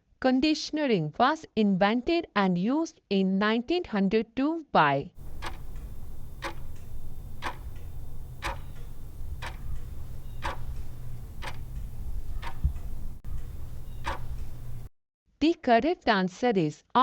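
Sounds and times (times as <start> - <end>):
clock ticking: 5.2 - 14.9
low steady hum: 5.2 - 14.9.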